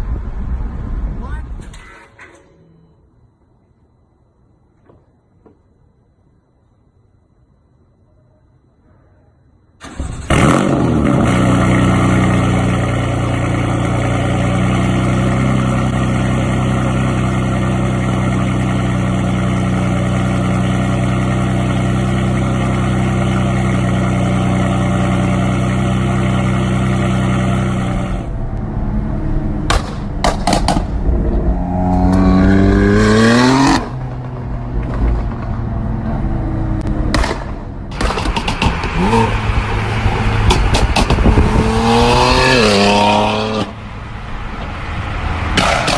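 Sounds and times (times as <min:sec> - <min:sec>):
car engine running and revving: 0:10.3 - 0:45.9
exhaust cracks: 0:29.5 - 0:43.8, 0:45.5 - 0:45.9.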